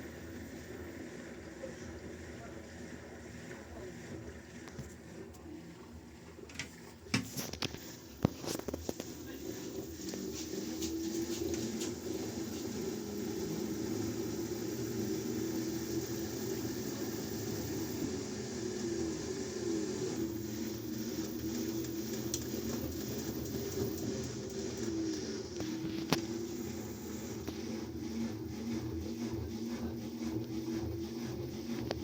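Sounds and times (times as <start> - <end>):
washing machine motor hum: 0.0 - 32.0.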